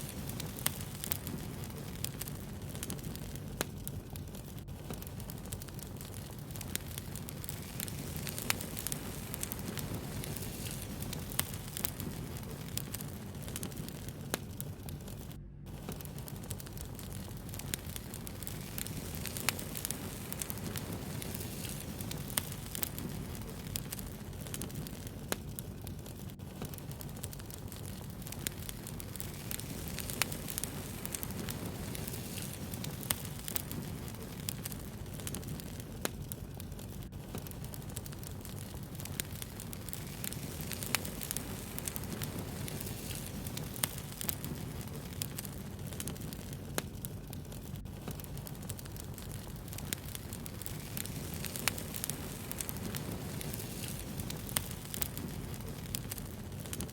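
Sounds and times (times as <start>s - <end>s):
fire crackles and pops: 0.0s - 56.9s
wood fire burning: 0.0s - 56.9s.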